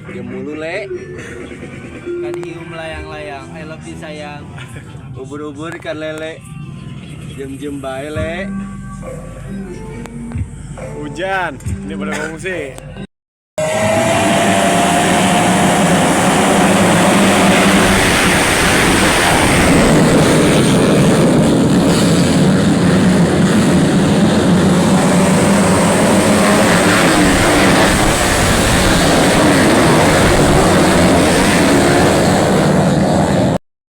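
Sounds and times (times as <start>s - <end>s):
motocross bikes racing: 13.6s - 33.6s.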